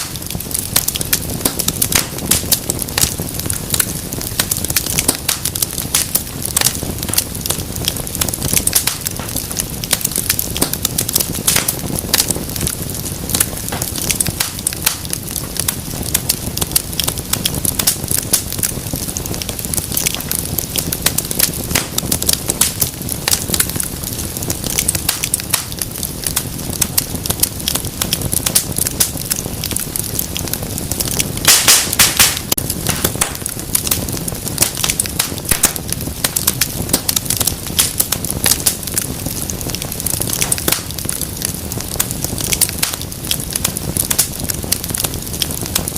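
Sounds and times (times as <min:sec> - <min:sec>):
low rumble of flames: 0:00.0 - 0:45.9
wood fire crackling: 0:00.0 - 0:45.9
sharp pops: 0:31.5 - 0:33.5.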